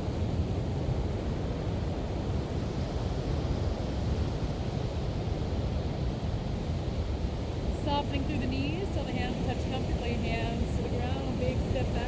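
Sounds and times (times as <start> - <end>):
ocean surf: 0.0 - 12.0.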